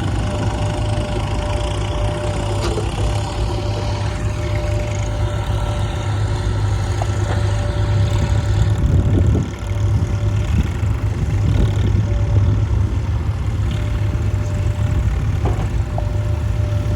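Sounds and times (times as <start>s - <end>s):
tractor diesel engine chugging: 0.0s - 16.9s.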